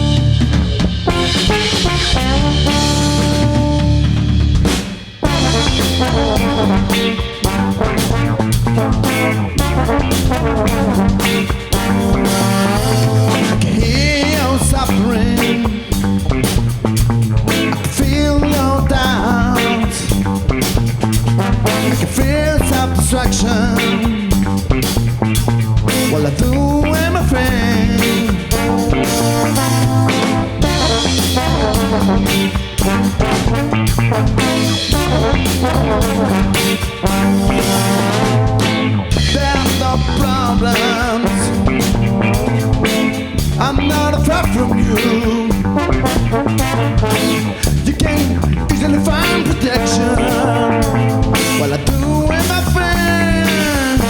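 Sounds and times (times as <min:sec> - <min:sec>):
baritone guitar: 0:00.0 - 0:54.0
drum kit: 0:00.0 - 0:54.0
trombone line: 0:00.0 - 0:54.0.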